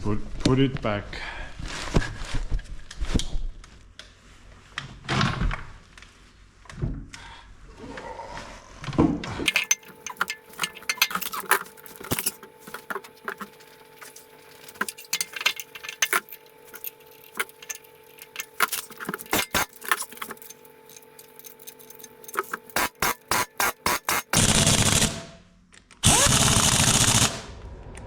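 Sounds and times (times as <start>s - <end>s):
metal parts and tools clinking: 9.5s - 24.4s
faint steady hum: 9.5s - 25.9s.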